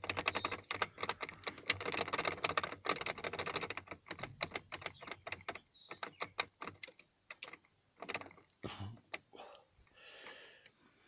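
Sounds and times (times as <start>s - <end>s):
key clicking and rattling in a lock: 0.0s - 8.5s.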